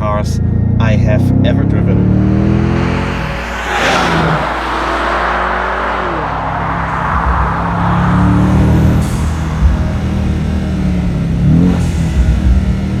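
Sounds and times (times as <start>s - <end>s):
car engine pulling under load: 1.5s - 13.0s
rushing noise: 2.1s - 12.2s.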